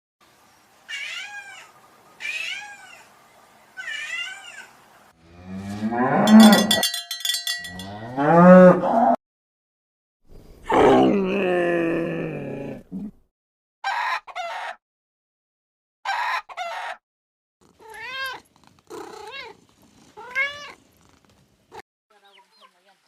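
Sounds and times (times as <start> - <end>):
cow mooing: 5.2 - 6.8, 7.8 - 9.2.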